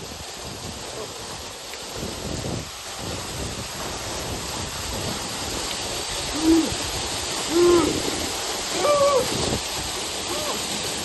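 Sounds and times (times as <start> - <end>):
waterfall rushing: 0.0 - 11.0
person hooting woo: 6.3 - 6.8, 7.5 - 8.0, 8.7 - 9.4, 10.2 - 10.7.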